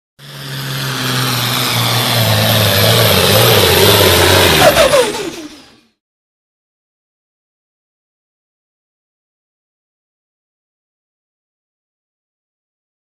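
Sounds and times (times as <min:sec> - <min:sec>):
truck engine running hard: 0:00.2 - 0:06.0.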